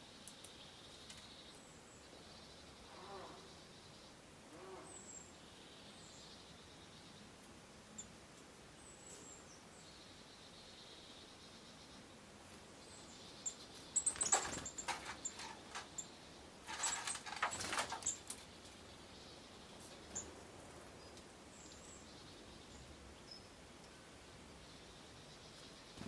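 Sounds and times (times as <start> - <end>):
birds chirping: 8.8 - 26.0
close crackling or rustling: 14.0 - 16.0, 16.6 - 18.5.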